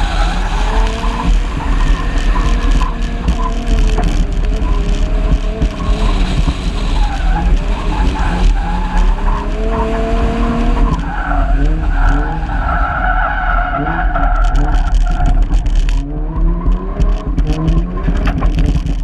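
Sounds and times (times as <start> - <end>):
heavy low rumble: 0.0 - 13.0
car engine revving: 0.0 - 19.0
tyres on dirt: 0.0 - 19.0.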